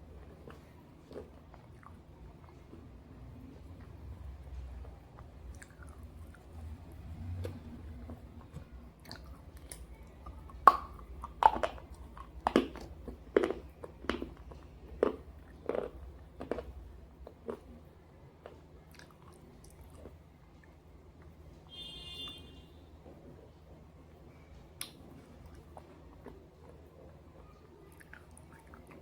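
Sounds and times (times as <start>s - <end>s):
sharp dry chewing crunches: 10.5s - 17.7s.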